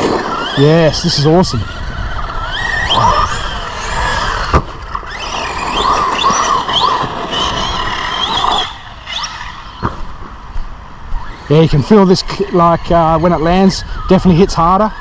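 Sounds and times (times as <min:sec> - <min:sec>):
electric motor whining: 0:00.0 - 0:10.2
tyres churning dirt: 0:00.0 - 0:10.4.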